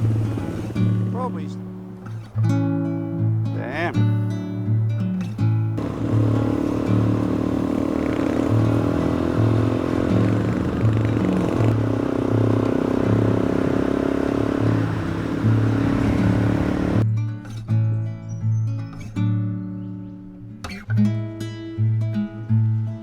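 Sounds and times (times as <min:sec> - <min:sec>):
motorcycle engine under load: 0:00.0 - 0:01.2, 0:05.8 - 0:17.0.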